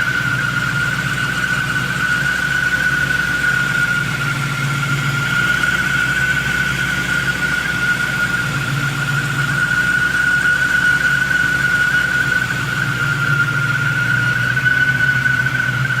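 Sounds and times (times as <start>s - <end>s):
car engine idling: 0.0s - 16.0s
high-pitched whine: 0.0s - 16.0s.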